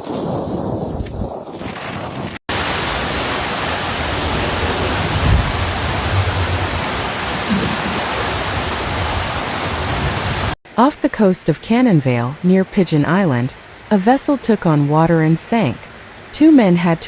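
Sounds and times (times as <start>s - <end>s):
heavy rain and wind hiss: 0.0s - 10.6s, 14.8s - 16.4s
low thumps: 4.2s - 9.3s.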